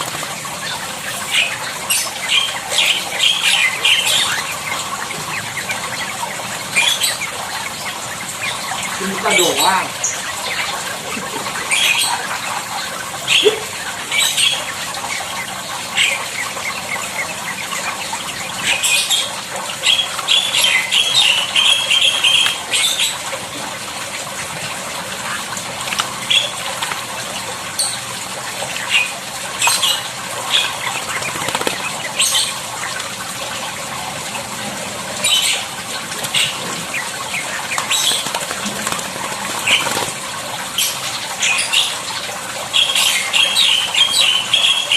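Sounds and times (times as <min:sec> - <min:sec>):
bird wings fluttering: 0:00.0 - 0:01.8, 0:31.0 - 0:32.3, 0:36.1 - 0:40.7
water splashing: 0:00.0 - 0:42.8.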